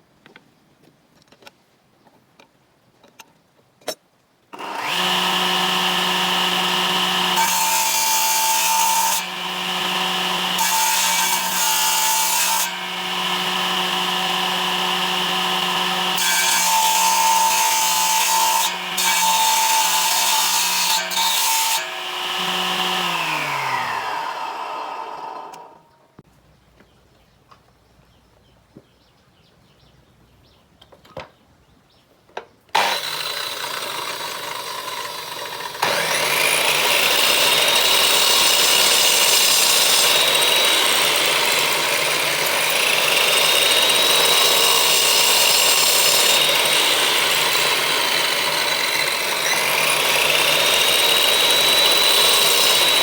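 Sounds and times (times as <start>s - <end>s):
power tool motor running: 4.6s - 25.8s, 32.8s - 53.0s
power tool cutting wood: 4.6s - 25.9s, 32.8s - 53.0s.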